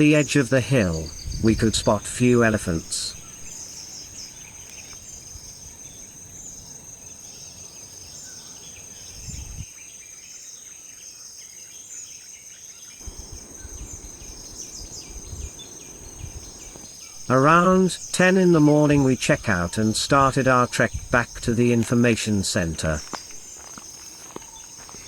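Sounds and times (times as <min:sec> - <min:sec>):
birds chirping: 0:00.0 - 0:05.0, 0:13.0 - 0:25.0
insects chorus: 0:00.0 - 0:25.0.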